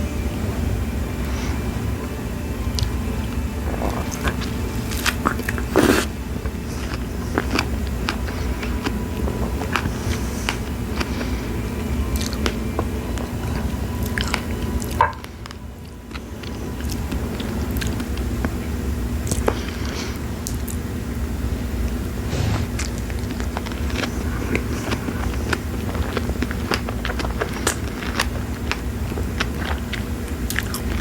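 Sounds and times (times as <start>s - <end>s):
low background hum: 0.0s - 31.0s
biting and chewing strawberries: 2.7s - 12.6s, 22.3s - 31.0s.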